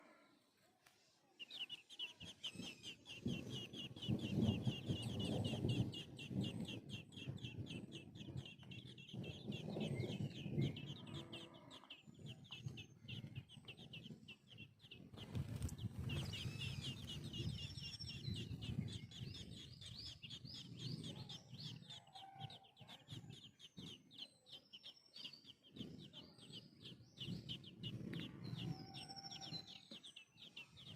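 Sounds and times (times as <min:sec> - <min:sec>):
chicks peeping: 0:01.4 - 0:30.9
hen clucking: 0:02.0 - 0:14.7.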